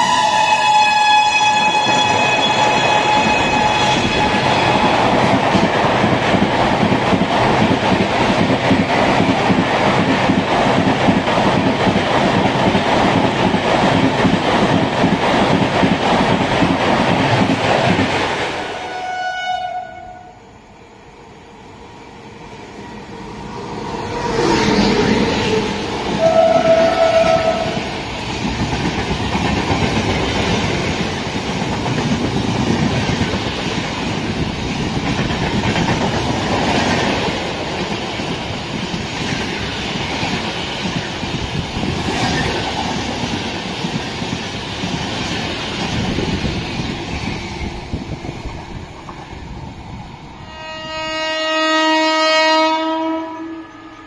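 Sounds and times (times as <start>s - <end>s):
train horn blast: 0.0s - 4.9s, 18.7s - 20.5s, 24.0s - 27.8s, 50.4s - 54.0s
train wheels rattling on track: 0.0s - 18.9s, 22.5s - 51.1s
train coaches rumbling past: 0.0s - 54.0s.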